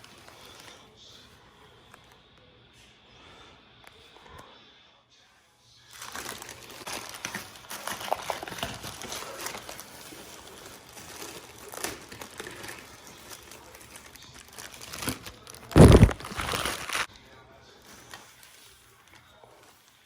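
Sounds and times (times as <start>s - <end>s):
packaging crinkling and rustling: 0.0s - 0.9s, 5.9s - 20.0s.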